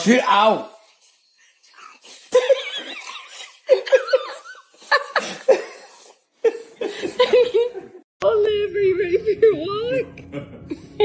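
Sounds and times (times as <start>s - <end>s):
person laughing: 10.2s - 11.0s.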